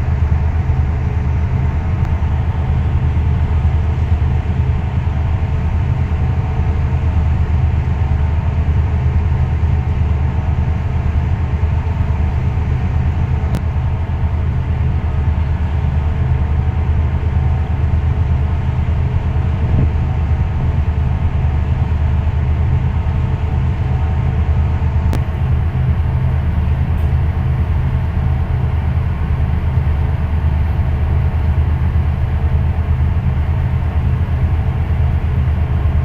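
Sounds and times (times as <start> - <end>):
ship engine rumbling: 0.0 - 36.0
faint steady hum: 25.1 - 36.0.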